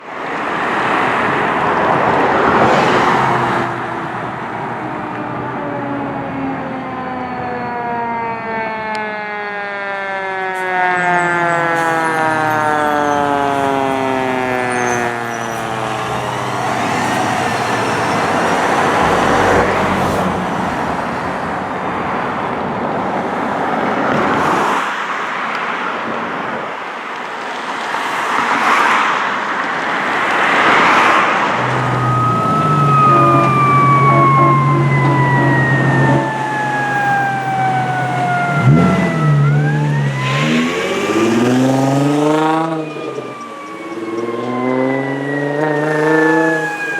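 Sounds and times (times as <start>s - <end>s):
fire engine siren: 0.0s - 22.8s, 29.7s - 46.9s
passing engine and road noise: 0.0s - 46.9s
low engine drone: 31.6s - 42.0s.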